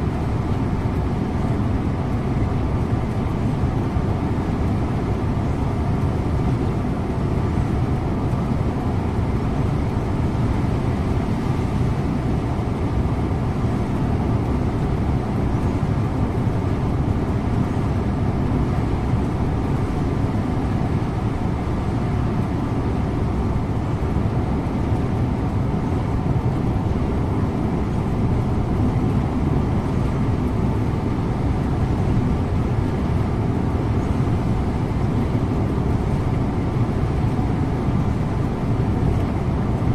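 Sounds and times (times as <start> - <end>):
bus engine running: 0.0 - 39.9
road and tyre noise: 0.0 - 39.9.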